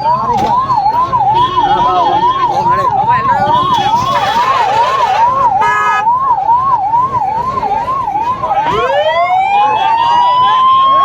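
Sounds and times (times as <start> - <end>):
siren rising wail: 0.0 - 11.0
siren yelping: 0.0 - 11.0
vehicle horn: 1.4 - 2.4, 3.6 - 6.0.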